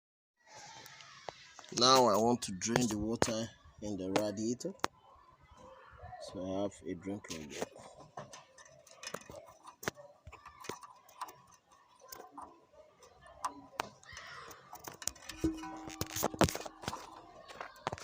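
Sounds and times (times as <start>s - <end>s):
hand tools clicking and knocking: 7.3s - 18.0s.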